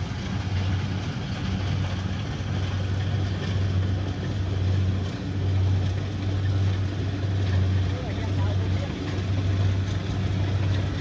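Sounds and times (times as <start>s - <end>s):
combine harvester diesel engine: 0.0s - 11.0s
harvester machinery working: 0.0s - 11.0s.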